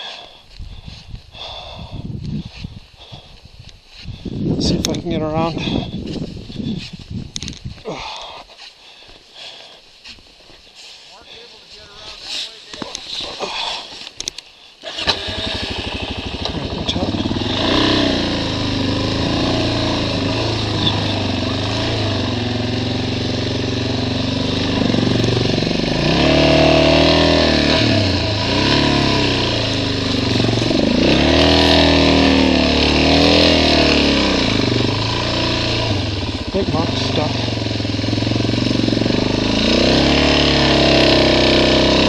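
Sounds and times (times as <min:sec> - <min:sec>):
motorcycle engine revving: 0:14.8 - 0:42.0.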